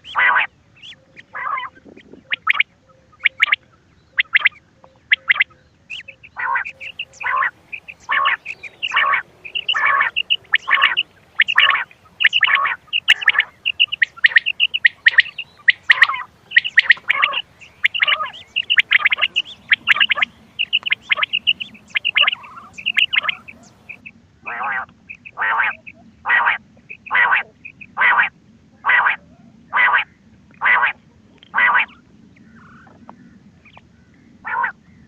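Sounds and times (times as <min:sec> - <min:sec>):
quail calls: 0:00.0 - 0:33.0, 0:34.4 - 0:34.8.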